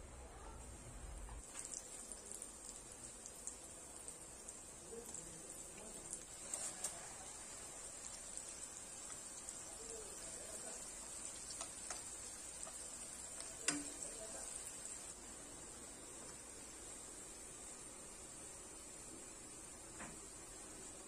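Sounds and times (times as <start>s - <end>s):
deep-frying sizzle in oil: 0.3s - 21.0s
chopsticks clicking against pan: 11.5s - 12.8s, 13.4s - 14.0s.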